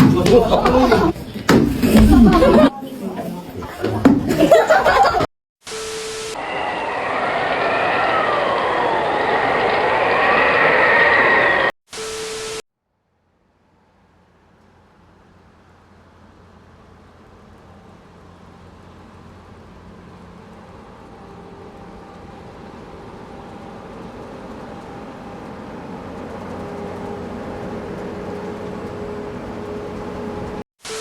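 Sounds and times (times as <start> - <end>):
machine running noise: 5.7 - 12.6, 16.6 - 31.0.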